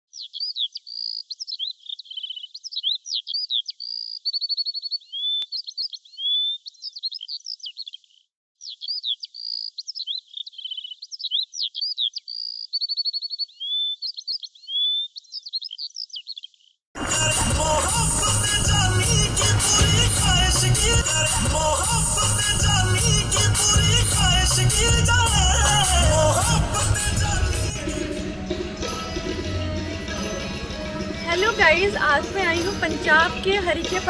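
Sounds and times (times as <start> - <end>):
songbird singing: 0.1 - 16.6.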